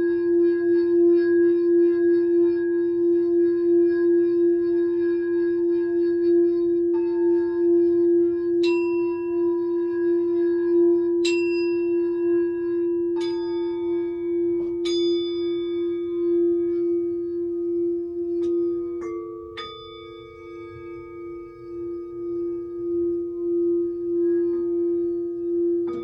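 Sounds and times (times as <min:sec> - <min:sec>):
low singing bowl tone ringing: 0:00.0 - 0:26.0
high singing bowl strikes: 0:06.8 - 0:26.0.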